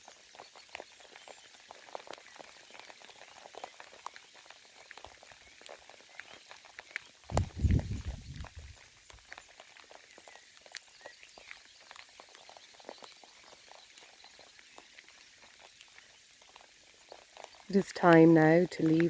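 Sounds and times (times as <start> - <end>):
light rain pattering: 0.0 - 19.0
faint steady hiss: 17.7 - 19.0.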